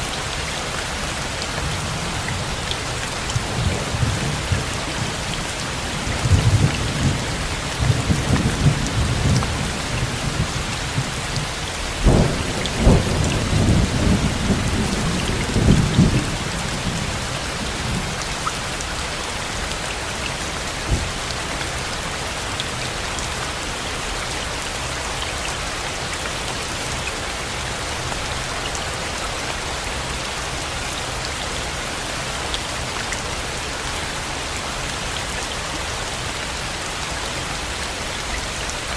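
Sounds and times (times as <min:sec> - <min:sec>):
heavy rain: 0:00.0 - 0:38.9
thunder rumbling and cracking: 0:12.0 - 0:17.3.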